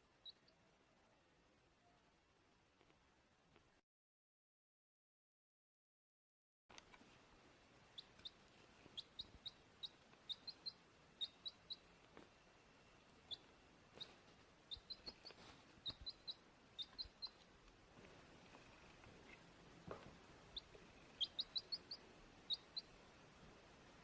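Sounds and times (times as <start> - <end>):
small bird chirping: 0.0 - 0.7, 7.8 - 19.6, 20.2 - 23.1.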